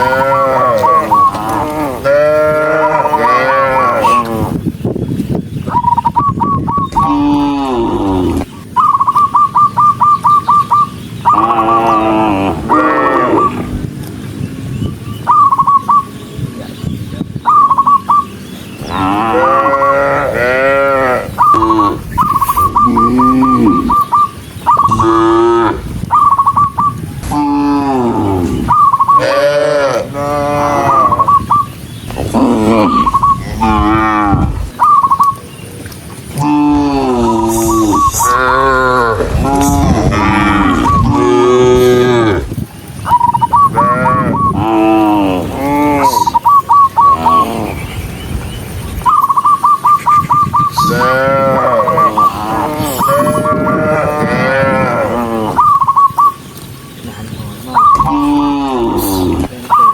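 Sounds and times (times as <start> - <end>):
cattle mooing: 0.0 - 4.5, 11.3 - 13.7, 18.9 - 24.1, 24.9 - 26.0, 27.2 - 31.3, 32.2 - 34.8, 36.4 - 42.6, 43.7 - 46.4, 50.8 - 55.7
rapidly pulsing high-pitched call: 8.8 - 12.0, 15.2 - 16.2, 19.2 - 27.0, 28.6 - 29.6, 30.4 - 35.5, 37.0 - 39.9, 43.1 - 44.6, 46.0 - 47.7, 49.1 - 53.7, 55.5 - 56.5, 57.6 - 58.5, 59.6 - 59.9.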